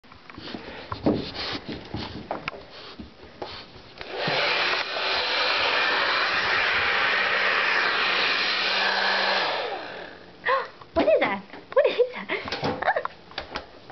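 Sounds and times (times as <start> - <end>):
hair dryer blowing: 4.0 - 10.3.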